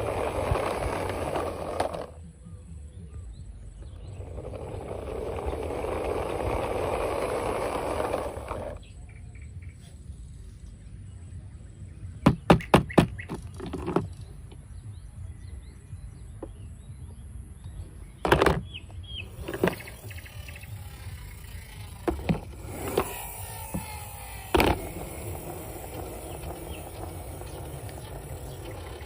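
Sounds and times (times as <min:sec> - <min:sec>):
steady low rumble: 0:00.0 - 0:12.2, 0:13.4 - 0:22.8
faint bird chirps: 0:08.8 - 0:22.0.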